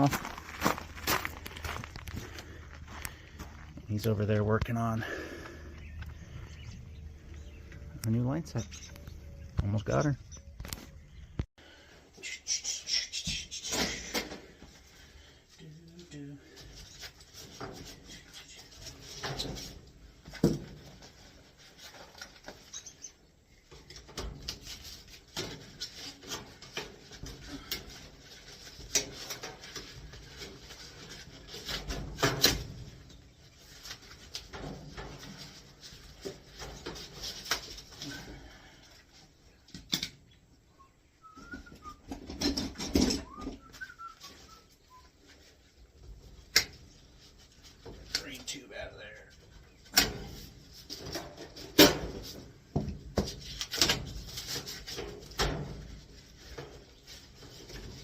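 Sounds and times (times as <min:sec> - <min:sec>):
knocks and clanks on metal unit: 0:42.1 - 0:43.5.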